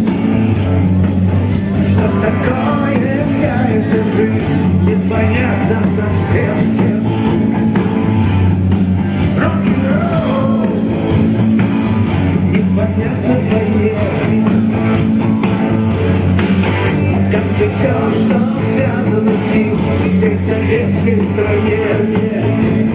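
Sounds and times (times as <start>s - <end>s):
rock band playing live: 0.0s - 22.9s
person singing: 1.4s - 8.1s, 9.2s - 11.3s, 12.3s - 15.4s, 16.8s - 22.9s.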